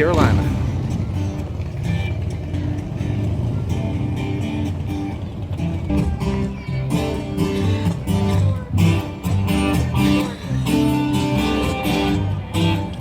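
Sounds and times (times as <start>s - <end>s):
acoustic guitars strummed and plucked: 0.0s - 13.0s
bass line: 0.0s - 13.0s.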